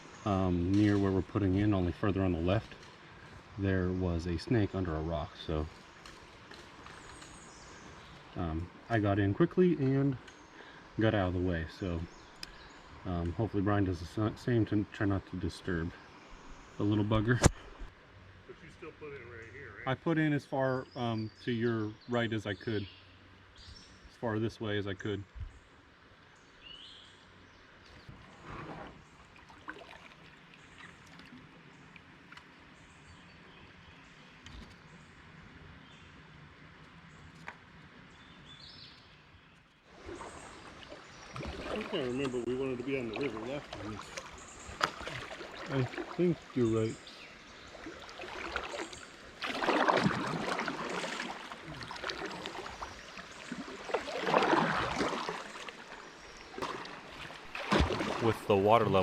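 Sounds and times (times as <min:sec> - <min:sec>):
river water flowing: 0:00.0 - 0:20.7, 0:25.8 - 0:38.6, 0:39.9 - 0:59.0
bird chirp: 0:26.4 - 0:28.2, 0:38.1 - 0:49.2
kayak swishing into water: 0:28.0 - 0:31.5, 0:39.9 - 0:59.0.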